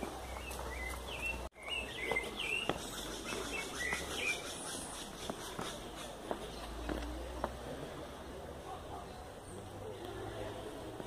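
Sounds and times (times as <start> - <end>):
forest birds chirping: 0.0 - 7.2
soft outdoor background: 0.0 - 11.0.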